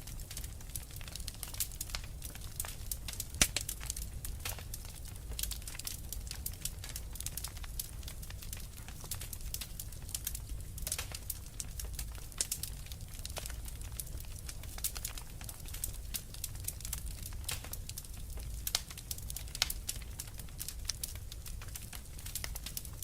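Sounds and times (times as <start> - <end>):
fireplace fire crackling: 0.0 - 23.0
low rumble of fire: 0.0 - 23.0.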